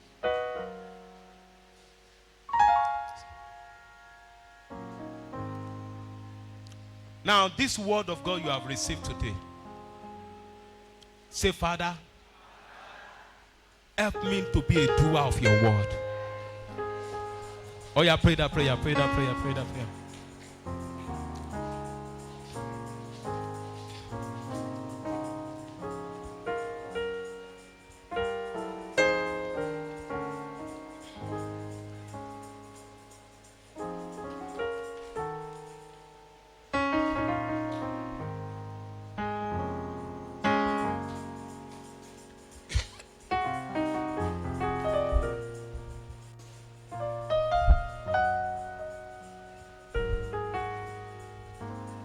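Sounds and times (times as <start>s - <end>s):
keyboard playing gentle chords: 0.0s - 12.4s, 14.0s - 52.0s
low thumps: 47.6s - 48.1s.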